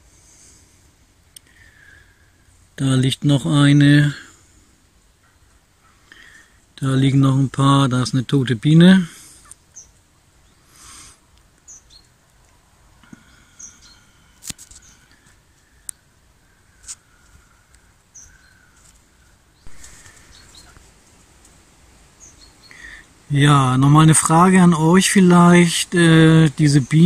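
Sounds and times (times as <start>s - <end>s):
high bird chirps: 19.6s - 20.8s, 22.2s - 23.1s.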